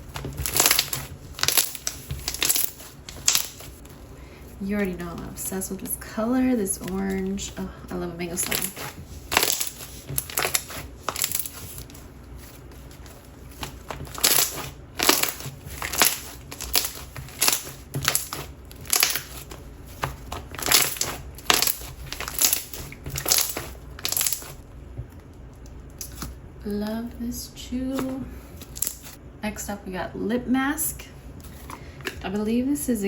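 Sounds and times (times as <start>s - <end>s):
slime squeezed by hand crackling: 0.4s - 3.8s.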